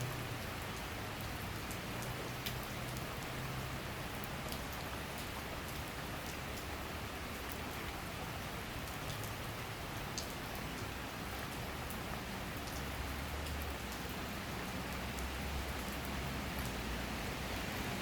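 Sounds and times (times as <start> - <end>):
sharp raindrop ticks: 0.2 - 6.7, 10.2 - 16.8.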